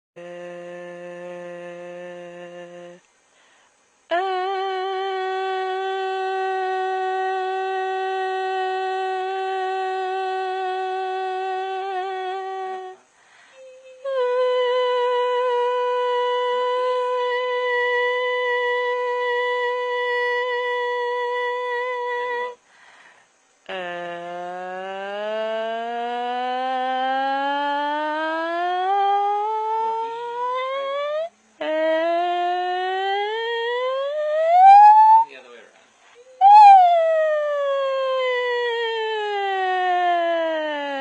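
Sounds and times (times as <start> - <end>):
person holding a sung note: 0.2 - 3.0, 23.7 - 35.4, 36.2 - 41.0.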